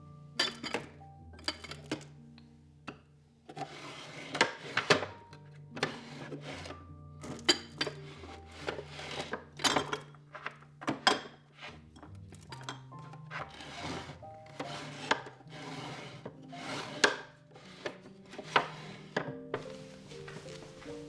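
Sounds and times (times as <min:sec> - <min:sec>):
soft background music: 0:00.0 - 0:21.0
objects clicking and knocking: 0:00.4 - 0:02.2, 0:02.8 - 0:15.4.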